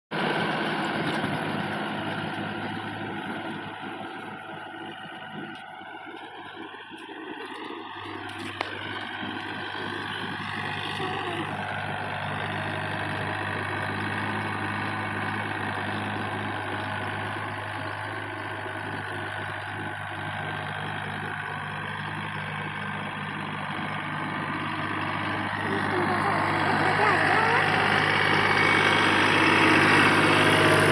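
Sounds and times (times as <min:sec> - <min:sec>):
motor humming: 0:24.8 - 0:30.9.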